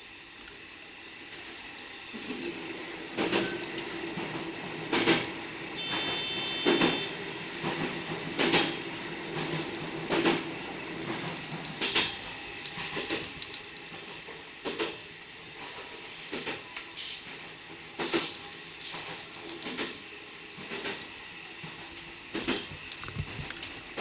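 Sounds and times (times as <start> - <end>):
train wheels clacking over rail joints: 2.1 - 24.0
brief high whine: 5.8 - 7.1.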